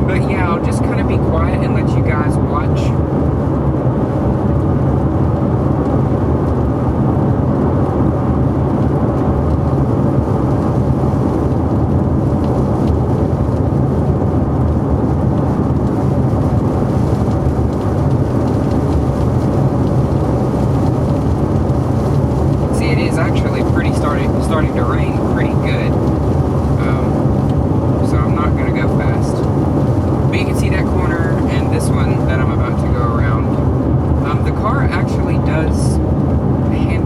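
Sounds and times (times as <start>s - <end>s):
wind and road noise: 0.0s - 37.0s.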